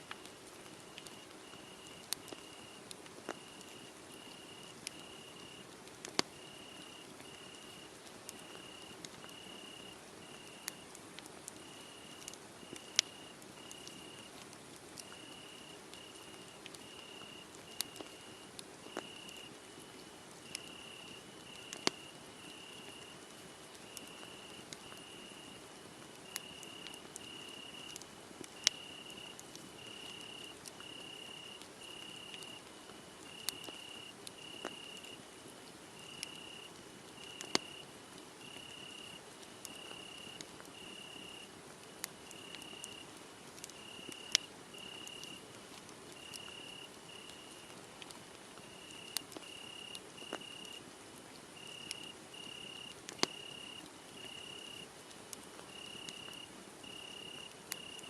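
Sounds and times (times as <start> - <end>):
wood fire crackling: 0.1 - 40.9, 41.8 - 58.0
crickets chirping: 1.1 - 5.6, 6.4 - 7.8, 8.4 - 10.6, 11.6 - 14.3, 15.2 - 19.5, 20.5 - 23.2, 23.9 - 25.6, 26.2 - 28.0, 28.6 - 32.6, 33.2 - 35.2, 36.0 - 37.8, 38.4 - 41.5, 42.3 - 43.0, 43.8 - 45.4, 46.2 - 47.7, 48.7 - 50.8, 51.6 - 54.8, 55.7 - 58.0.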